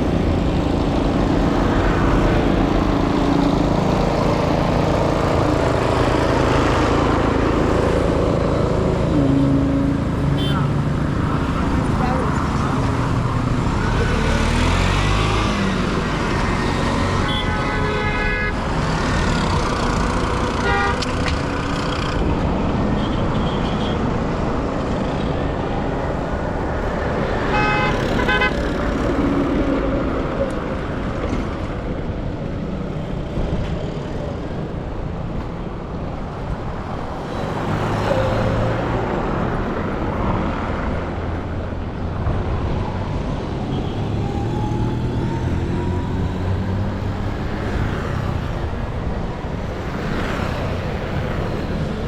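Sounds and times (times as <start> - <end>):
road traffic noise: 0.0 - 52.0
vehicle horns honking: 9.1 - 10.9, 17.1 - 18.6, 20.6 - 21.2, 27.4 - 28.7.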